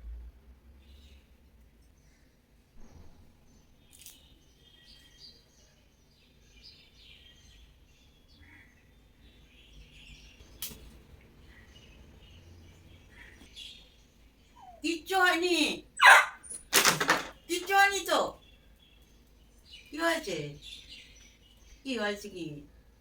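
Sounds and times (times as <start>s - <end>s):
dog whining in high squeaks: 14.6s - 14.8s, 16.0s - 16.7s.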